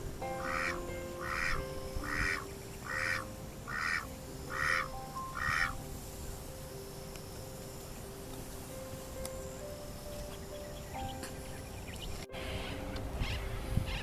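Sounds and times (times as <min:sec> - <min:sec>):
duck quacking: 0:00.4 - 0:05.8.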